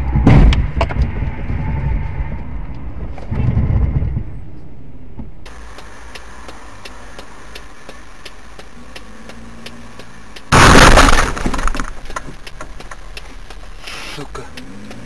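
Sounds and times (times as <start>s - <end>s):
road and engine noise: 0.0s - 15.0s
faint ticking: 5.5s - 10.5s, 12.0s - 15.0s
car crash with breaking glass: 10.5s - 12.3s.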